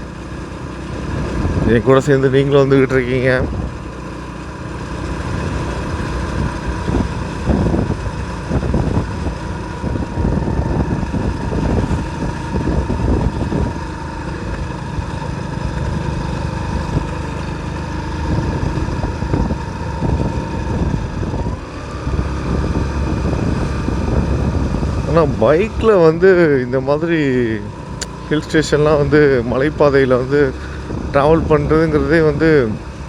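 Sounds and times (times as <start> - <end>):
motorcycle engine running: 0.0 - 33.0
wind on microphone: 6.3 - 13.9, 18.2 - 25.9.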